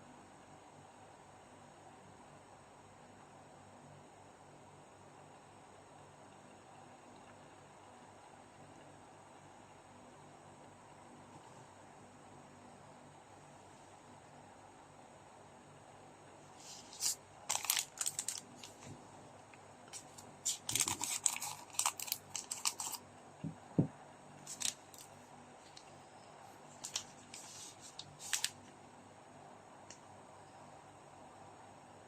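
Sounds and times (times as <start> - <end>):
packaging crinkling and tearing: 16.9 - 18.9, 19.9 - 23.0, 24.5 - 25.1, 26.8 - 28.6.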